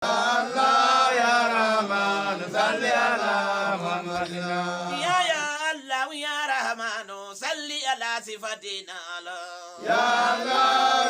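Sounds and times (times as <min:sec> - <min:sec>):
voices chanting a melody: 0:00.0 - 0:05.5, 0:09.8 - 0:11.0.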